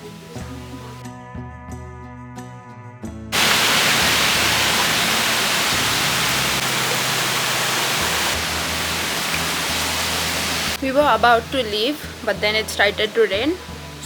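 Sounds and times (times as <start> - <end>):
heavy rain pouring: 3.4 - 14.0.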